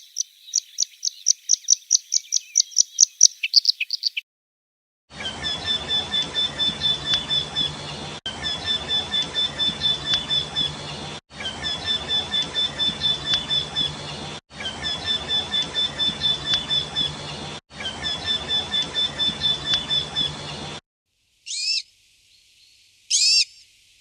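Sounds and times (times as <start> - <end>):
bird calling high clear notes: 0.0 - 4.2, 5.5 - 7.8, 8.4 - 10.8, 11.6 - 14.0, 14.8 - 17.2, 18.0 - 20.4.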